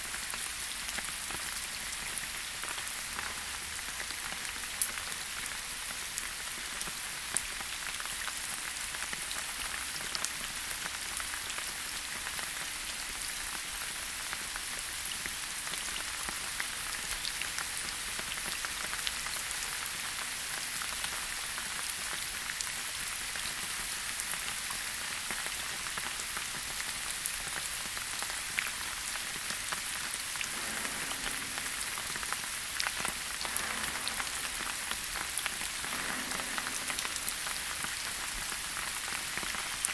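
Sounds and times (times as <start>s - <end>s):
steady rain hissing: 0.0s - 39.9s
loud water drip: 28.1s - 39.9s.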